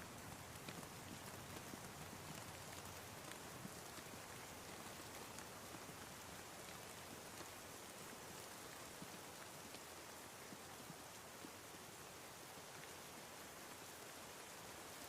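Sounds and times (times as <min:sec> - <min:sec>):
raindrop ticks: 0:00.0 - 0:11.5
faint rain falling: 0:00.0 - 0:15.0.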